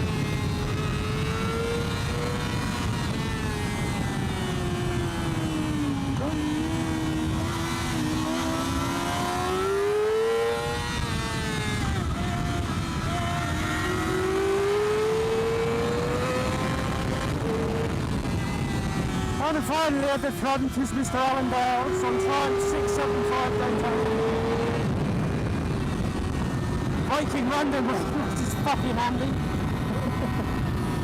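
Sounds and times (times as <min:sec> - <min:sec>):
motorcycle engine at high revs: 0:00.0 - 0:31.0
wind rush: 0:10.8 - 0:19.8, 0:21.4 - 0:31.0.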